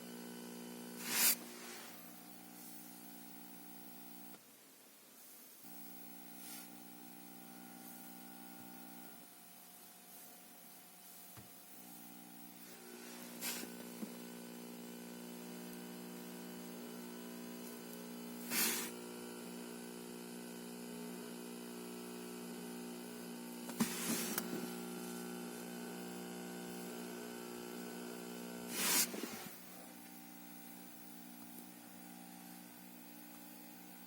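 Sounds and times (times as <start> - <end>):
electronic buzzing hum: 0.0 - 4.4, 5.6 - 34.0.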